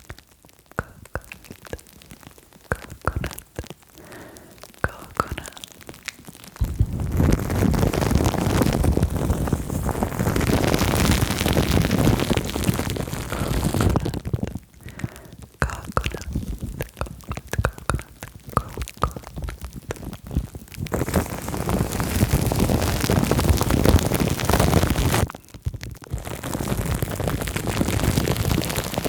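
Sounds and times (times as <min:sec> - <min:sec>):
crackles and clicks: 0:00.0 - 0:29.0
plastic film and foam rustling: 0:05.4 - 0:29.0
low rumble: 0:06.6 - 0:14.5.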